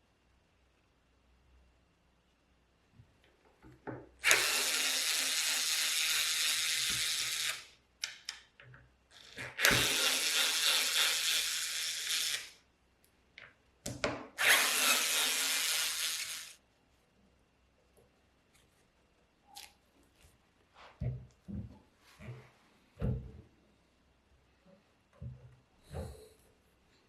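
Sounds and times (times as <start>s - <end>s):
power tool running: 4.2s - 7.6s, 14.4s - 16.6s.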